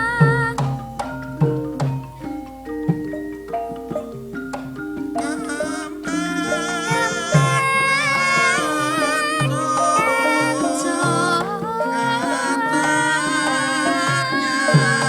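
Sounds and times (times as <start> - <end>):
person singing: 0.0 - 0.8, 5.2 - 15.0
gamelan metallophone notes: 0.0 - 15.0.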